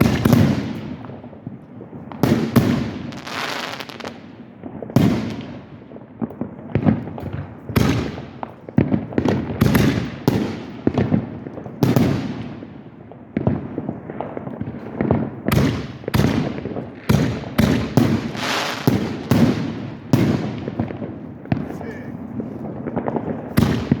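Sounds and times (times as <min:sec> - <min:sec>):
fireworks bangs: 0:00.0 - 0:24.0.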